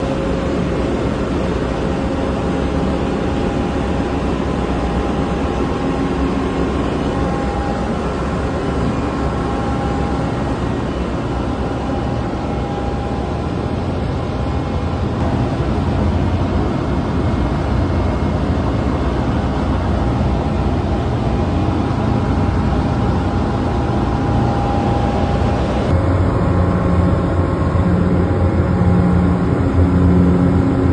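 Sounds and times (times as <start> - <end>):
ship engine machinery drone: 0.0 - 30.9.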